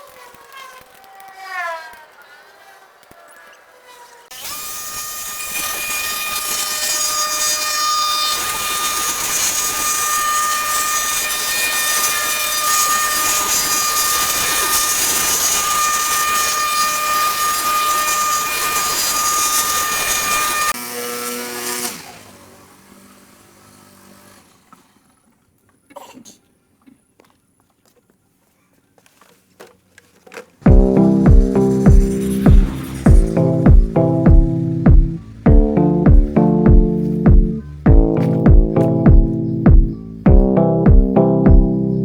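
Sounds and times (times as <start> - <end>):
power tool whining and hissing: 2.8 - 25.2, 30.7 - 40.3.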